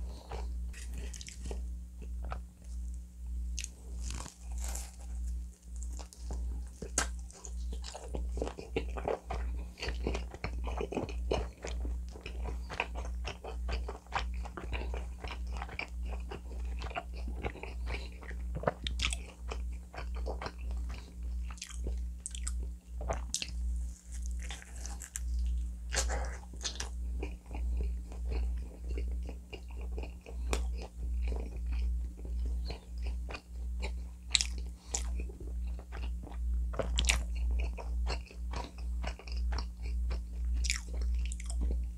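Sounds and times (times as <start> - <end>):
person chewing pizza: 0.0 - 41.9
crust crackling: 0.1 - 18.2, 21.8 - 34.0.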